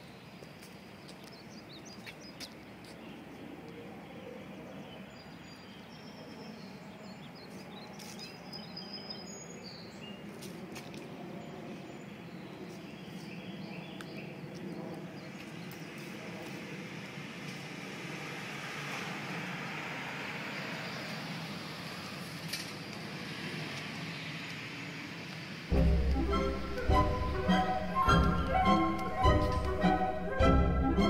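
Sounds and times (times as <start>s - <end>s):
birds chirping: 25.7s - 31.0s.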